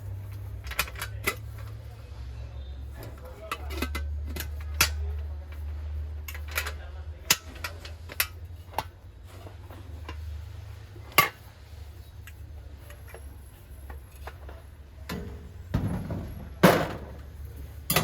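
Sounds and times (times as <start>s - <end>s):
metal clinks and knocks: 12.2s - 18.0s.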